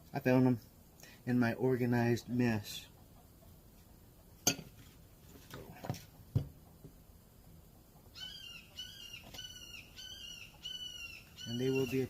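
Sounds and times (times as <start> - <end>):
wooden workpieces knocking on bench: 5.9 - 7.0
bird chirping: 8.1 - 12.0.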